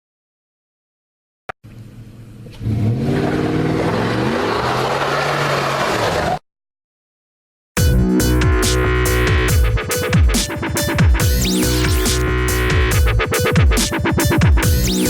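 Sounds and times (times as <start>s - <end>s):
car engine revving: 2.4s - 6.4s.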